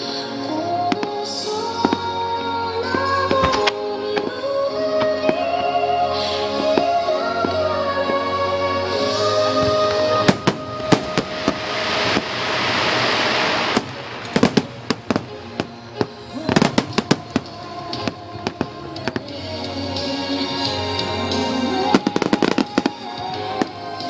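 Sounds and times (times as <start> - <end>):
music: 0.0 - 24.0
fireworks bursting: 0.8 - 24.0
rushing hiss: 9.2 - 19.2, 21.4 - 24.0.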